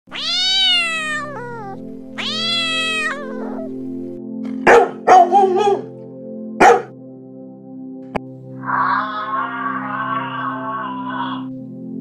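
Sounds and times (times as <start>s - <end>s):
cat meowing: 0.1s - 3.7s, 8.7s - 11.5s
dog barking: 4.6s - 6.0s, 6.6s - 6.9s.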